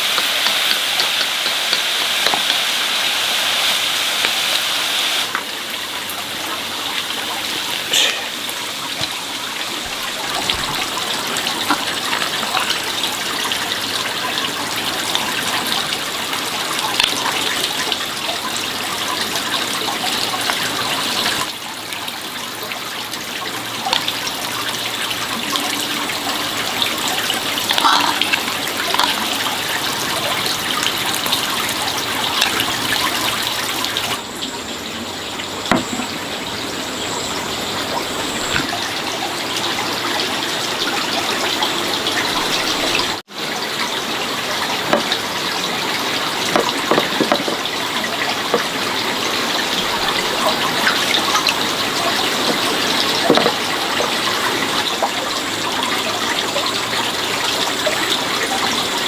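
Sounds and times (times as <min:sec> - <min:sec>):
water running: 0:00.0 - 0:59.0.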